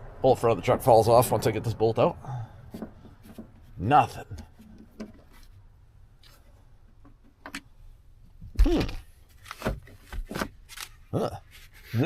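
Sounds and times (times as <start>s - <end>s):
sharp clicks and knocks: 2.7s - 5.6s, 6.2s - 7.7s.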